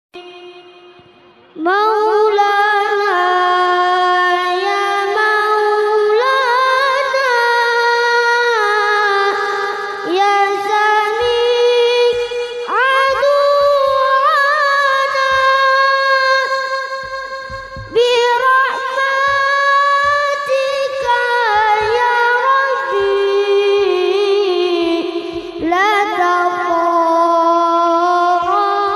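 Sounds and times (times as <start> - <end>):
high singing voice: 0.2 - 28.9
light regular beat: 15.3 - 26.9.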